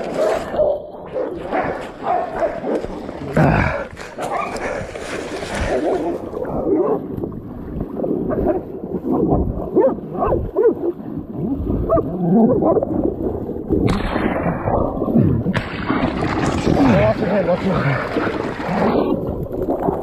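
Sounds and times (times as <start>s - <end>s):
rumbling movement: 12.8s - 20.0s.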